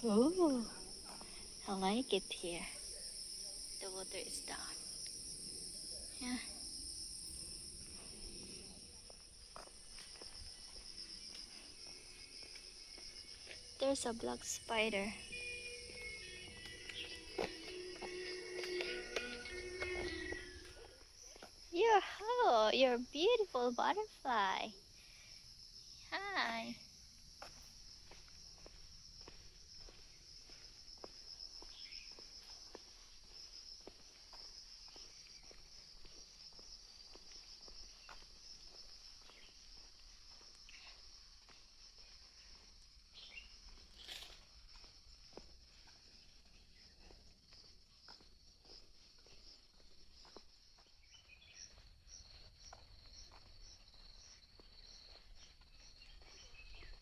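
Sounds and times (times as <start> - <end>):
footsteps on a trail: 0.0 - 1.9, 7.2 - 21.7, 27.2 - 57.0
high-pitched insect drone: 0.0 - 21.9
insects buzzing: 0.0 - 57.0
pulsing insect chirp: 0.0 - 57.0.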